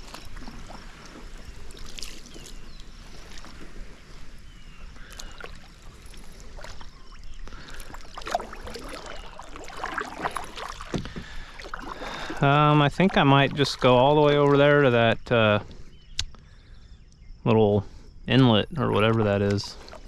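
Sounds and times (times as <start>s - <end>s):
paddle splashing in water: 0.0s - 15.2s, 18.9s - 20.0s
water dripping off paddle: 5.0s - 15.0s.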